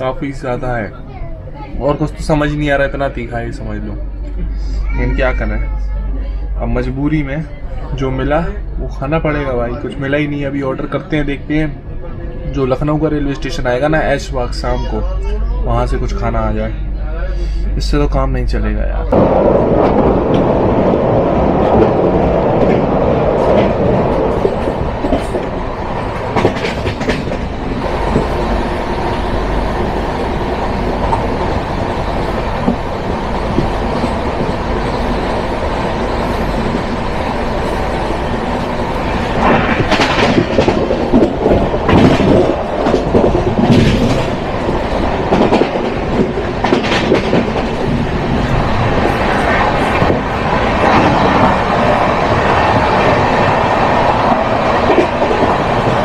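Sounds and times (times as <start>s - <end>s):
train rumble: 0.0s - 56.0s
wheels clacking over rail joints: 19.2s - 56.0s.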